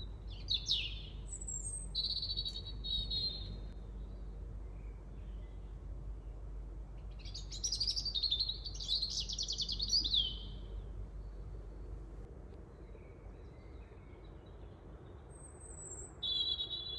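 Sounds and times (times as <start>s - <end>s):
faint bird chirps: 0.0s - 6.4s, 7.0s - 12.0s, 12.6s - 16.9s
low background hum: 0.0s - 16.9s
bird singing trilling phrase: 0.3s - 3.8s, 7.2s - 10.8s, 15.8s - 16.9s.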